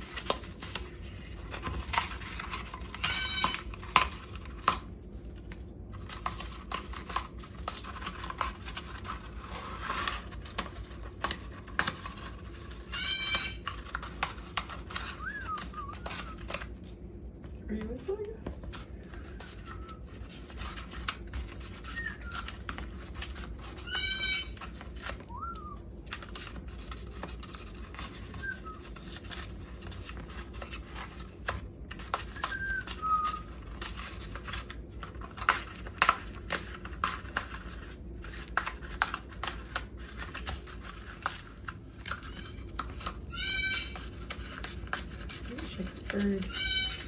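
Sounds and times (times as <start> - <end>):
beak crunching dried leaves: 0.0 - 4.9, 6.0 - 16.9, 19.3 - 47.0
short thin whistles: 32.4 - 33.5.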